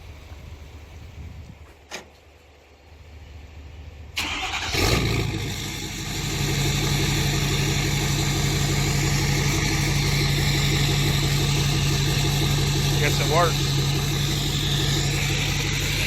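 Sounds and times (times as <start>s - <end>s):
diesel engine starting and idling: 3.5s - 16.0s.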